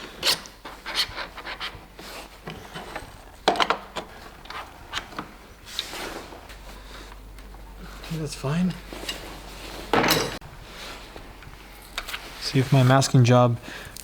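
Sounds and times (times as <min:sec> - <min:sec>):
tools and parts knocking and scraping: 0:00.0 - 0:06.5, 0:08.8 - 0:10.4.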